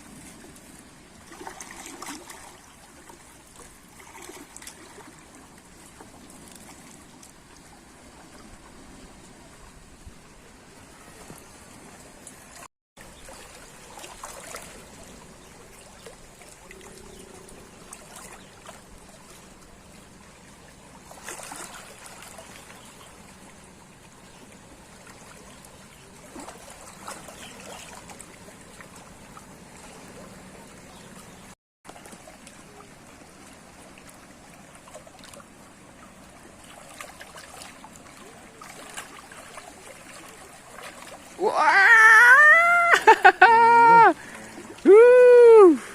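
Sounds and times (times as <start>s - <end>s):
water trickling and lapping: 0.0s - 45.9s.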